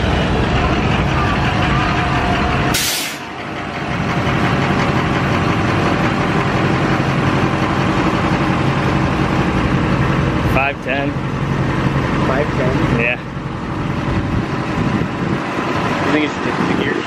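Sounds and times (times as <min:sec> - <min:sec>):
diesel truck engine running: 0:00.0 - 0:17.0
short burst of hiss: 0:02.8 - 0:03.3.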